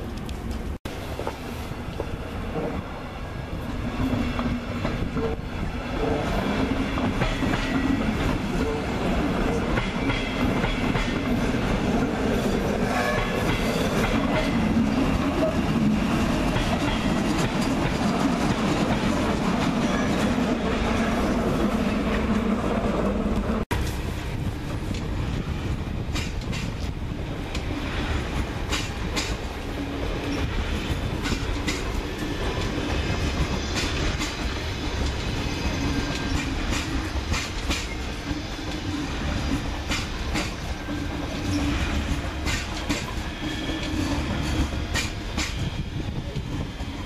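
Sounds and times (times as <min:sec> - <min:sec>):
train rumble: 0:00.0 - 0:47.0
wheels clicking over rail joints: 0:28.4 - 0:29.5.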